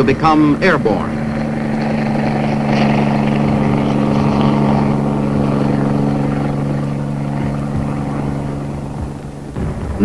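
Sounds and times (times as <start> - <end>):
helicopter engines and rotors droning: 0.0 - 10.0.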